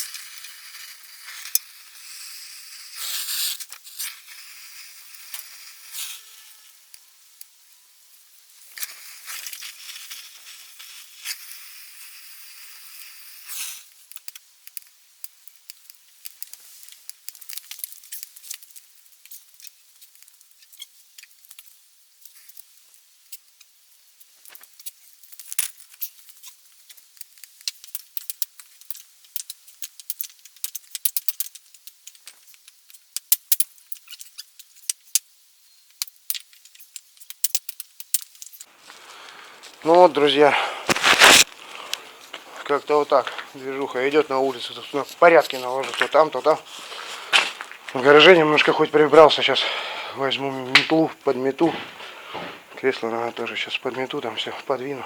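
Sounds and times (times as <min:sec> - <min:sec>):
steady hiss: 0:00.0 - 0:55.0
small objects clattering: 0:36.4 - 0:50.1.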